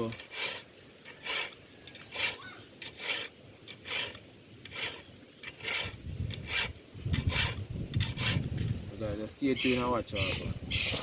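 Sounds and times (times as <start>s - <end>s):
handsaw cutting wood: 0.0s - 8.5s.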